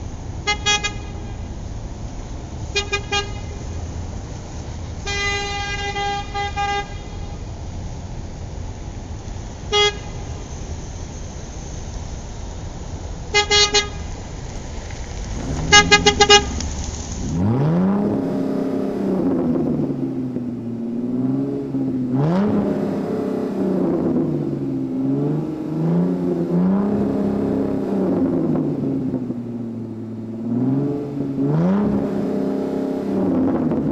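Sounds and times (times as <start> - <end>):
car horn tooting: 0.5 - 1.5, 13.4 - 14.1, 14.7 - 17.5
car engine revving: 14.1 - 33.9.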